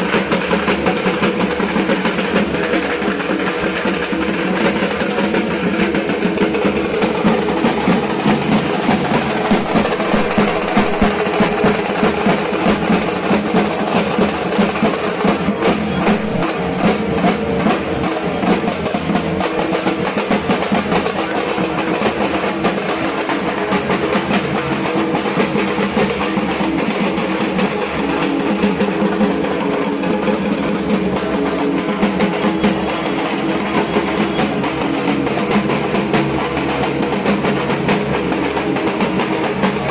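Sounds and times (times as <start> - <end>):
barrel drum beaten with sticks: 0.0 - 39.9.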